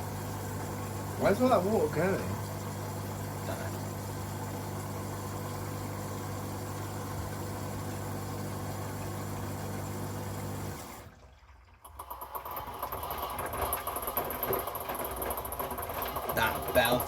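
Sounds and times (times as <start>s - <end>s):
washing machine pump humming: 0.0s - 17.0s
washing machine drum turning: 11.9s - 17.0s.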